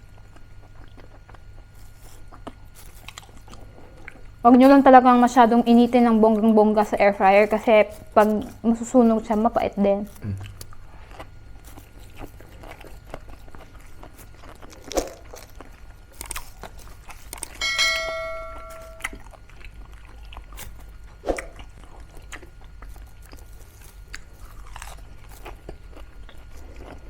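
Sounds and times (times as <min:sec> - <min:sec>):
crunchy chewing: 0:00.0 - 0:17.6, 0:19.1 - 0:27.0
ringing clink: 0:17.6 - 0:19.2.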